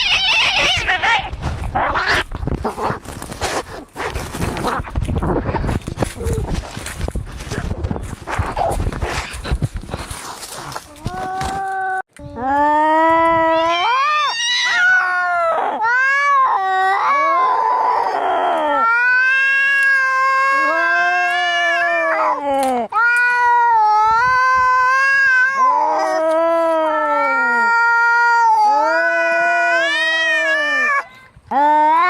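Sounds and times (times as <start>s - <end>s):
cats yowling: 0.0s - 2.3s, 13.4s - 22.4s, 23.0s - 32.0s.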